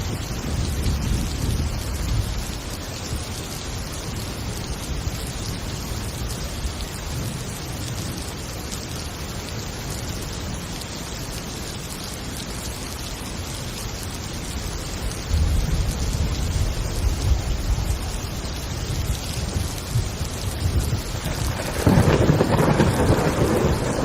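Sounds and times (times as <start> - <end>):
low rumble of thunder: 0.0 - 3.6, 15.0 - 24.0
heavy rain falling: 0.0 - 24.0.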